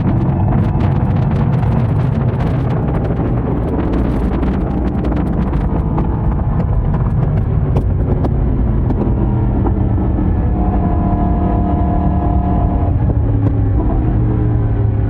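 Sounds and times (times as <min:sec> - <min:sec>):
motorcycle exhaust cruising: 0:00.0 - 0:15.0.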